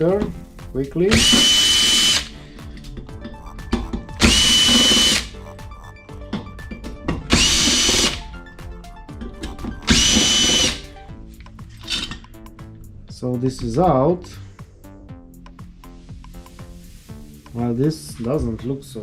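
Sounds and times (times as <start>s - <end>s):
cordless drill whining: 1.1s - 2.4s, 4.2s - 5.4s, 7.3s - 8.4s, 9.8s - 11.0s, 11.8s - 12.2s
screws and metal parts clicking: 11.7s - 12.4s.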